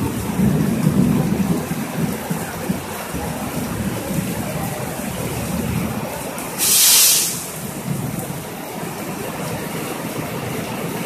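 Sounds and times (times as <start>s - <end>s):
diesel locomotive rumble: 0.0s - 11.0s
heavy rain pouring: 0.0s - 11.0s
sudden loud hiss: 6.6s - 7.6s.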